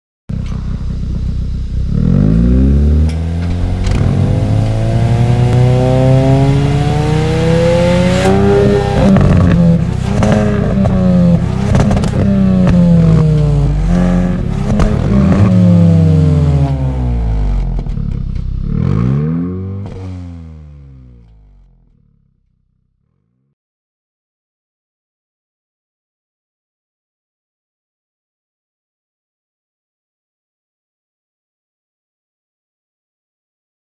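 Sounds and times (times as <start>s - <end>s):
car engine revving: 0.3s - 22.2s
exhaust cracks: 0.3s - 22.6s.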